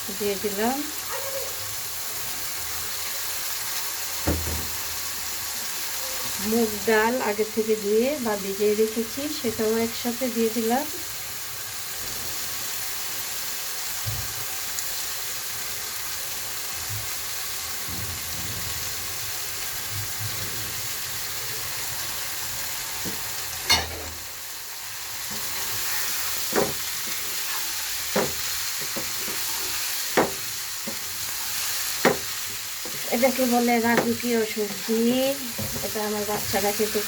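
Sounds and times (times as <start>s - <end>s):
vegetables sizzling in a frying pan: 0.0s - 37.0s
spatula knocking against pan: 26.5s - 27.2s, 28.1s - 29.5s, 30.1s - 31.1s, 32.0s - 33.1s, 33.8s - 34.9s.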